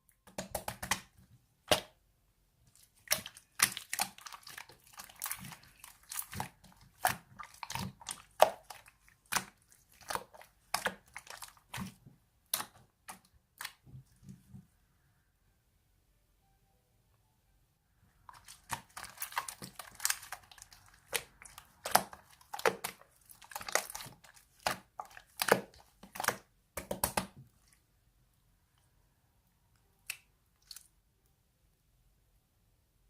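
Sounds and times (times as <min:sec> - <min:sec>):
crinkling handling noise: 0:18.3 - 0:26.4.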